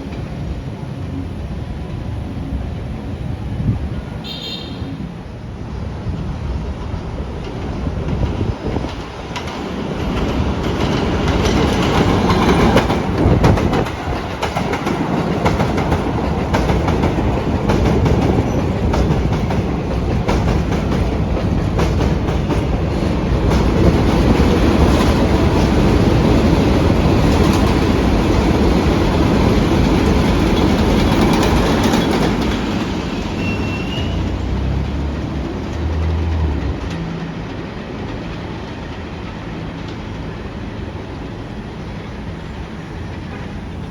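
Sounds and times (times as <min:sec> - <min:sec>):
train rumbling: 0:00.0 - 0:43.9
train wheels clacking over rail joints: 0:06.9 - 0:41.6.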